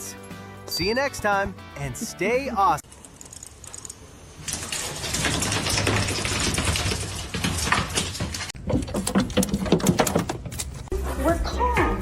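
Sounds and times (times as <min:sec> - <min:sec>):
rapid clicks and rattling: 0:02.8 - 0:10.8.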